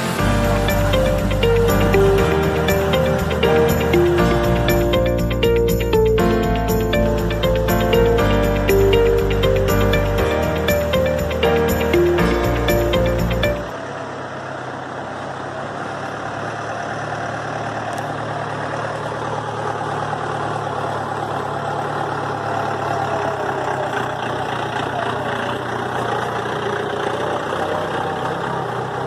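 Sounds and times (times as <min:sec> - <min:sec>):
background music: 0:00.0 - 0:13.7
jeep engine humming: 0:00.0 - 0:29.0.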